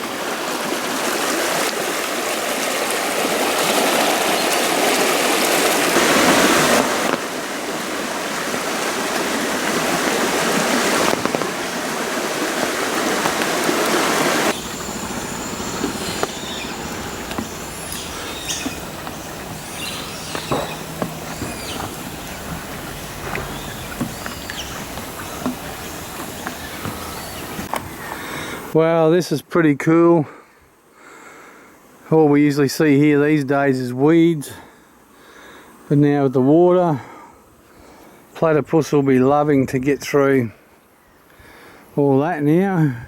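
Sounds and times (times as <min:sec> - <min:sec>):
creek water rushing: 0:00.0 - 0:28.8
faint high chirps: 0:14.5 - 0:27.7.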